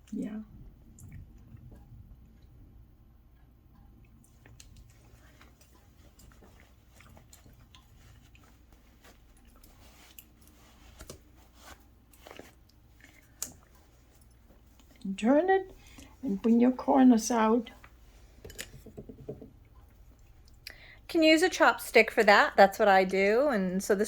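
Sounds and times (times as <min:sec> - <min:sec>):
fabric rustling: 0:04.4 - 0:20.1.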